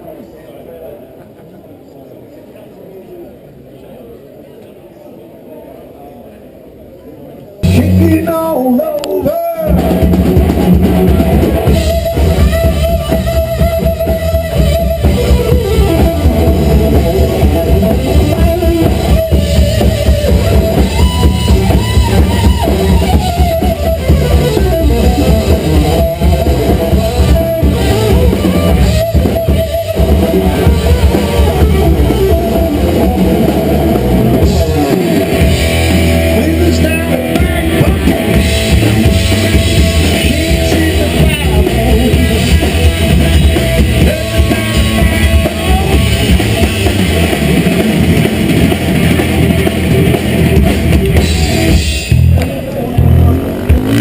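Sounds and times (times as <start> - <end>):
loud rock music with singing: 7.6 - 54.0.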